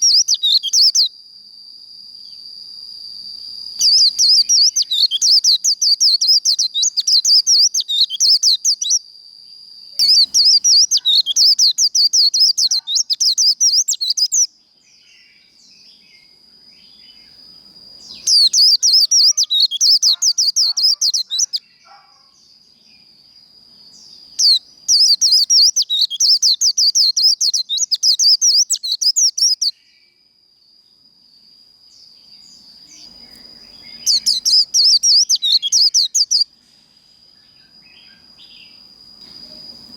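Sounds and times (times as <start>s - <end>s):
bird twittering song: 0.0s - 1.1s, 3.8s - 9.0s, 9.8s - 30.2s, 31.9s - 36.6s
thin steady high tone: 0.0s - 39.9s.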